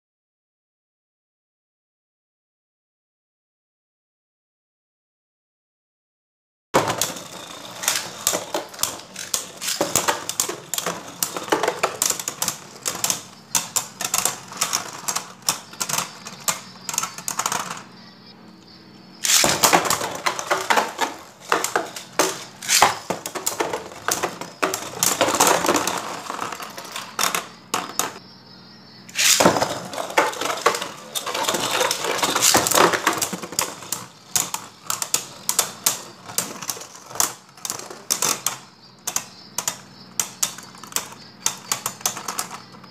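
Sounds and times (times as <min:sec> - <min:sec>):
spinning tops clashing and clacking: 0:06.8 - 0:17.9, 0:19.2 - 0:28.2, 0:29.1 - 0:42.9.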